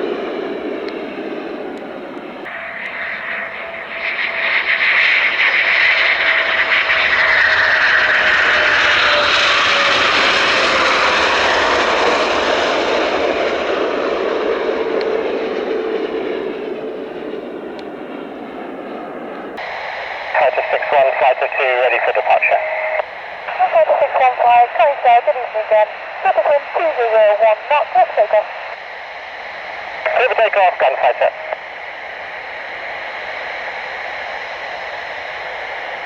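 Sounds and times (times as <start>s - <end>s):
jet aircraft passing by: 0.0s - 36.0s
jet engine whine dropping in pitch: 0.0s - 36.0s.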